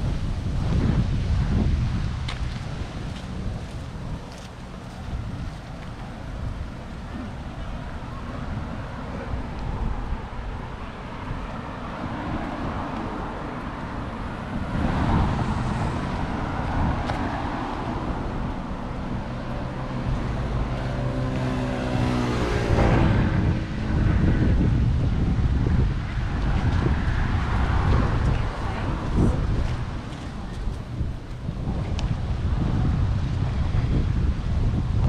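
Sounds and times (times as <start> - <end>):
street traffic: 0.0 - 35.0
wind buffeting microphone: 0.0 - 35.0
vehicle passing by: 6.4 - 34.3.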